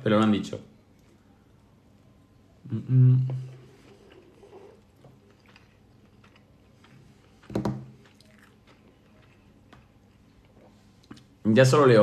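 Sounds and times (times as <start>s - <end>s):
person chewing: 3.4s - 11.4s.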